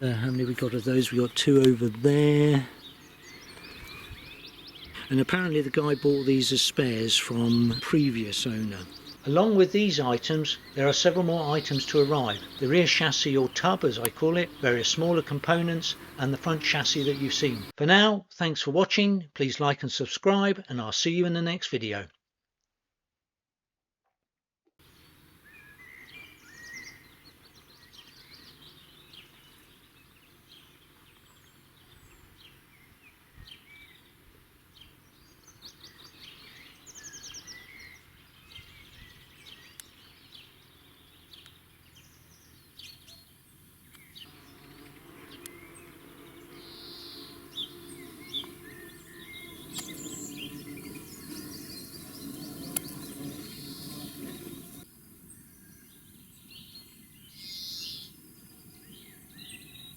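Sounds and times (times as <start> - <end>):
birds chirping and trilling: 0.0 - 17.8, 24.8 - 59.9
low steady noise: 0.0 - 17.8.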